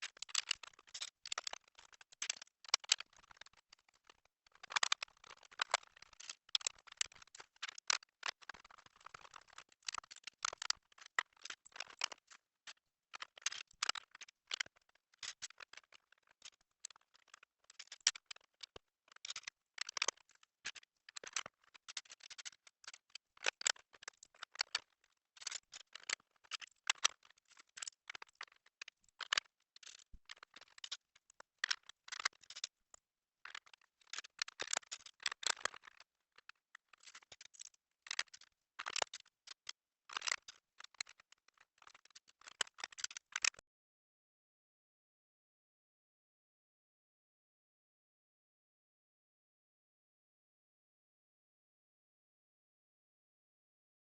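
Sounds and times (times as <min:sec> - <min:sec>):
plastic bricks clicking: 0:33.4 - 0:41.2.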